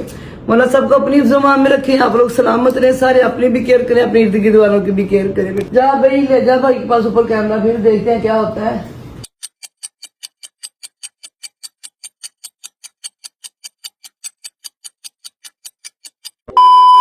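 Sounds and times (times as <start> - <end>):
clock ticking: 9.2 - 16.6
loud steady beep: 16.5 - 17.0.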